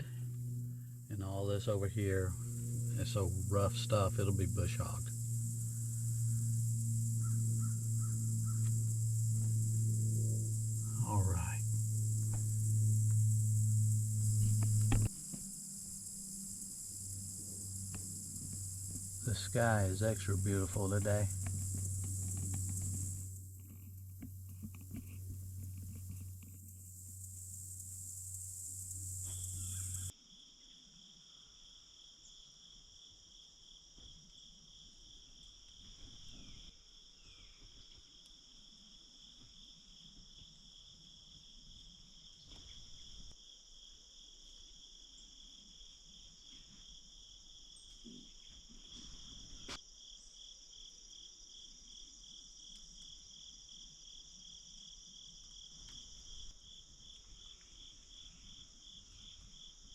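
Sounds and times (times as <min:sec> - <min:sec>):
insects high buzzing tones: 0:00.0 - 0:31.6
crickets pulsing trill: 0:00.0 - 0:59.9.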